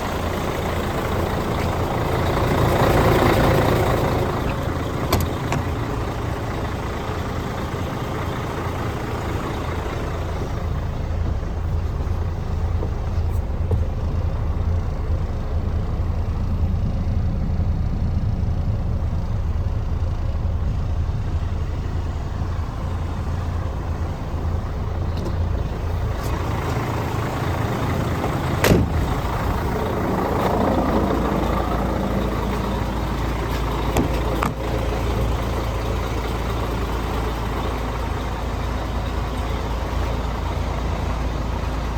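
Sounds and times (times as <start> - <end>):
truck diesel engine idling: 0.0 - 41.9.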